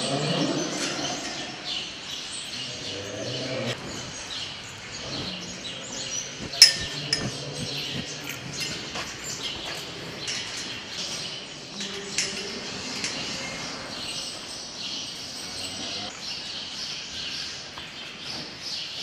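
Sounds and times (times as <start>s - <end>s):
small birds chirping: 1.0s - 19.0s
sharp metallic clink: 6.6s - 7.6s.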